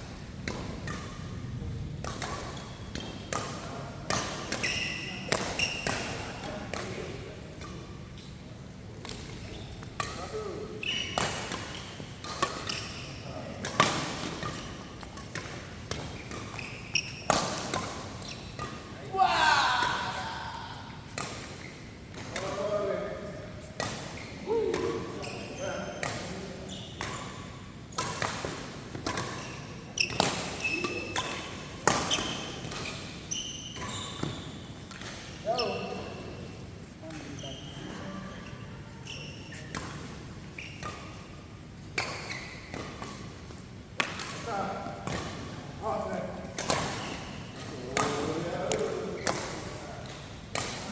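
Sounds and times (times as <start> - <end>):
rackets hitting shuttlecock: 2.0 - 7.8, 9.0 - 18.8, 43.9 - 50.9
shoes squeaking on court floor: 2.0 - 50.9
short high squeaks: 10.8 - 11.2, 32.1 - 34.6
racket striking shuttlecock: 11.2 - 12.8.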